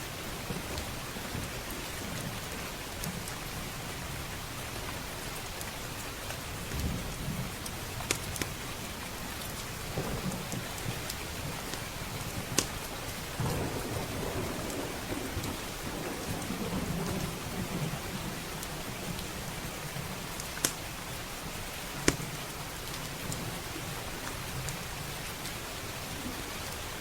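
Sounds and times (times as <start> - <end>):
heavy rain: 0.0 - 27.0
rolling thunder: 9.8 - 20.2
wood fire popping: 20.4 - 20.8.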